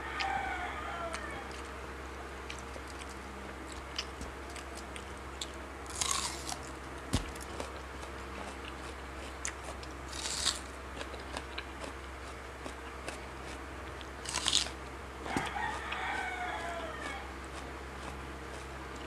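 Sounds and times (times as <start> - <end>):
rooster crowing: 0.0 - 2.0, 14.3 - 18.6
crunchy chewing: 0.0 - 19.0.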